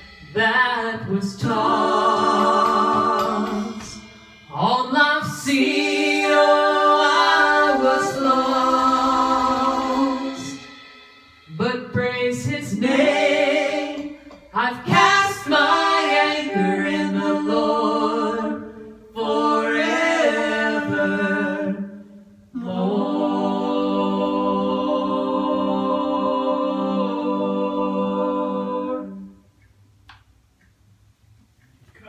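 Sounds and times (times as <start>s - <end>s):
vocal group singing a cappella: 0.0s - 29.6s.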